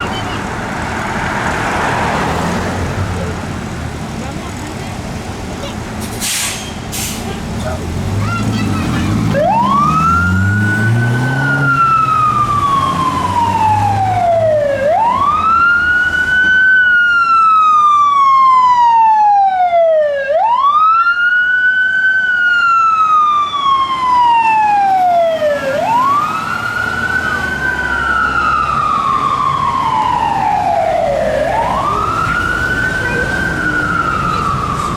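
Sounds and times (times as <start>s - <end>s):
truck engine rumbling: 0.0s - 18.4s, 22.1s - 34.9s
fire engine siren wailing: 8.3s - 34.9s.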